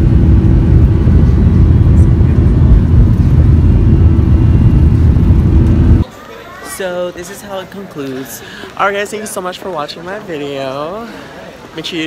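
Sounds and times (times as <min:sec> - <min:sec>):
rushing air: 0:00.0 - 0:06.0
jet engines rumbling: 0:00.0 - 0:06.1.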